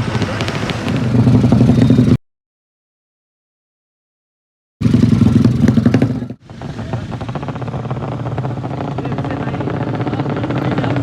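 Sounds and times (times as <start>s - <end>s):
motorcycle engine revving: 0.0s - 2.2s, 4.8s - 11.0s.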